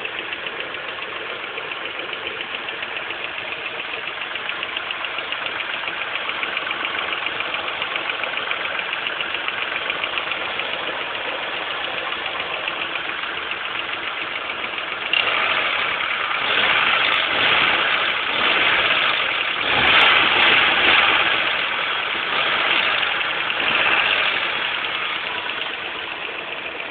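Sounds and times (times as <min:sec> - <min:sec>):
car engine ticking chatter: 0:00.0 - 0:26.9.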